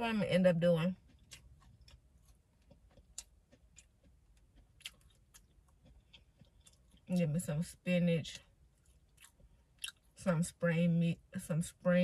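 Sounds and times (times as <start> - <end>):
mouth clicks of chewing: 2.6 - 7.1, 9.2 - 10.0.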